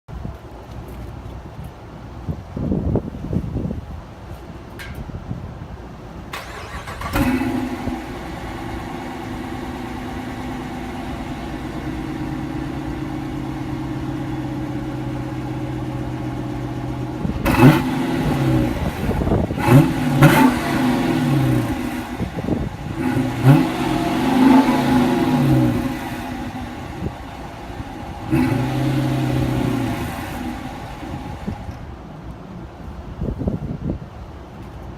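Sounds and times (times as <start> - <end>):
car engine starting: 6.3 - 32.2
car engine idling: 6.3 - 33.0
car engine revving: 6.4 - 31.7.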